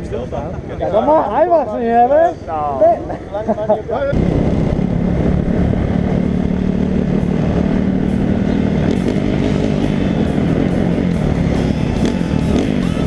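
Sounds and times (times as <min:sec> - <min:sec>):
wind rushing: 0:04.1 - 0:13.0
dirt bike engine running: 0:04.2 - 0:13.0.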